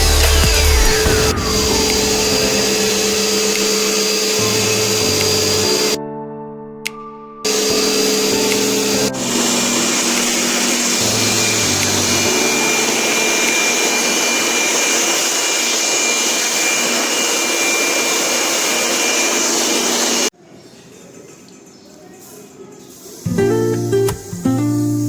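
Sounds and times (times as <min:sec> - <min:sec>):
electric motor whirring with hiss: 0:01.9 - 0:06.0, 0:07.5 - 0:20.3.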